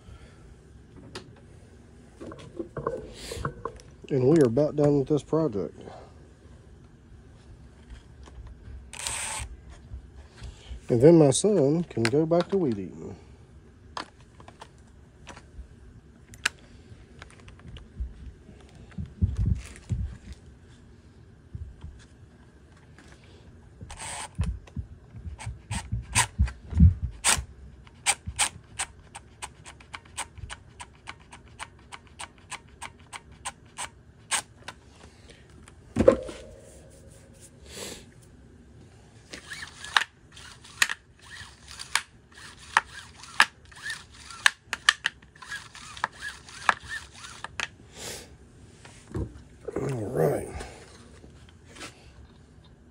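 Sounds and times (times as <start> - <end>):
loud knock: 36.0 - 37.0.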